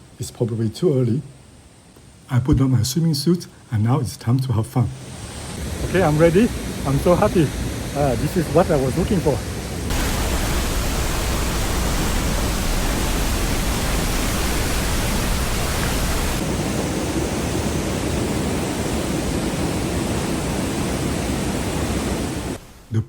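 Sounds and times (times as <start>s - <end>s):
waterfall rushing into pool: 5.0s - 23.0s.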